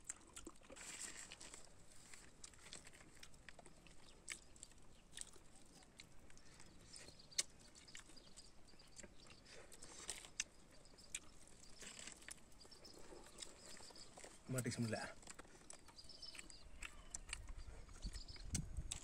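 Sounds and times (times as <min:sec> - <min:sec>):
chewing crisp fried fish: 0:00.0 - 0:19.0.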